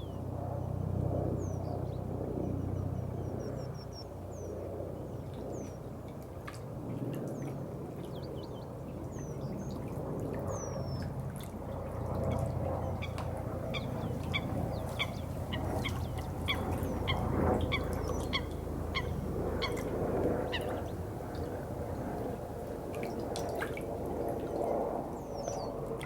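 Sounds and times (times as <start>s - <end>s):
birds calling: 12.3s - 23.2s.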